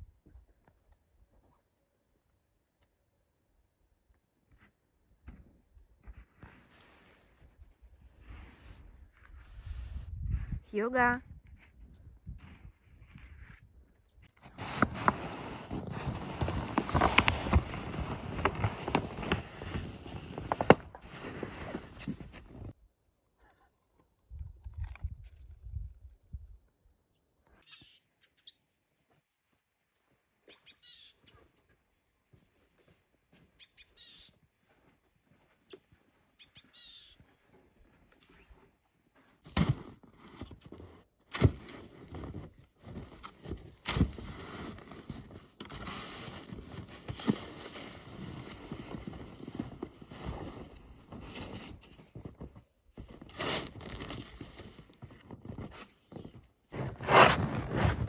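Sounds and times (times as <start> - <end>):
bird chirps: 27.6 - 28.6, 30.5 - 31.4, 33.6 - 34.4, 36.4 - 37.2.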